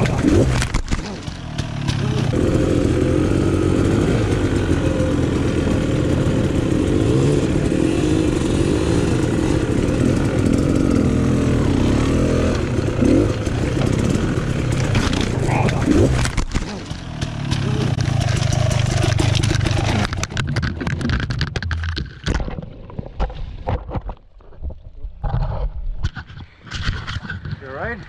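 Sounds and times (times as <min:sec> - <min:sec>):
dirt bike engine revving: 0:00.0 - 0:20.4.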